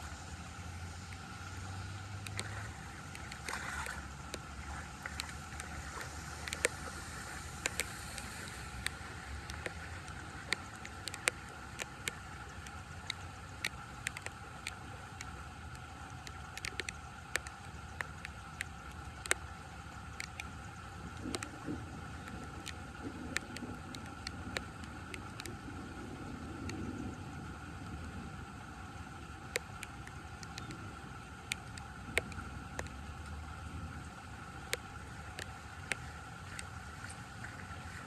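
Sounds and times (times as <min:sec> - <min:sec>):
short sharp splashes: 0:02.1 - 0:10.0.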